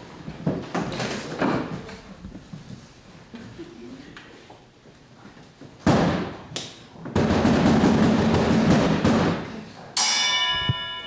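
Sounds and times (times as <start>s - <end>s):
drum roll: 7.2s - 9.4s
loud drum strikes: 7.2s - 9.4s
struck metal instrument ringing: 10.0s - 11.0s.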